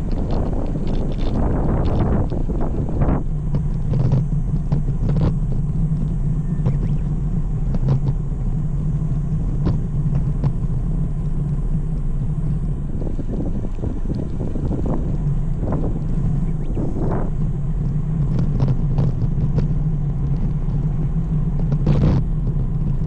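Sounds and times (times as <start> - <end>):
bike tyre noise: 0.0 - 23.0
wind on microphone: 0.0 - 23.0
sharp clicks and ticks: 9.5 - 23.0.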